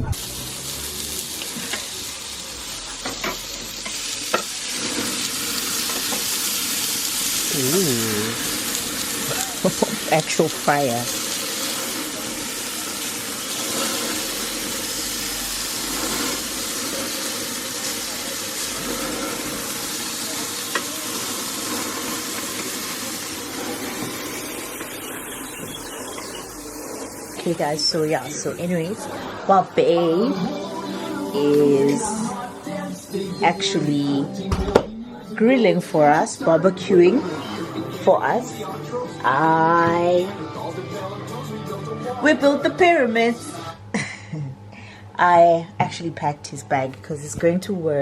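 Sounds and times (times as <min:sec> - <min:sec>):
grill hissing and crackling: 0:00.0 - 0:34.1.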